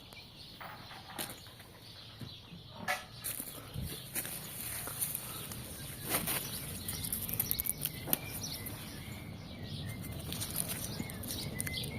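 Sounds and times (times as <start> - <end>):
dry bean plants rustling: 3.2 - 11.9
bean pods crackling: 3.4 - 11.9.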